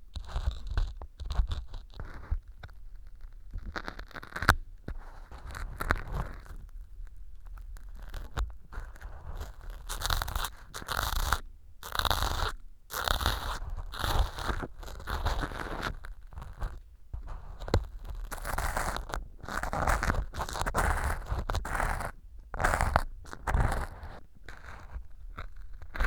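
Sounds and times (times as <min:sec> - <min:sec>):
ear pick scraping floral foam: 0:07.4 - 0:26.0.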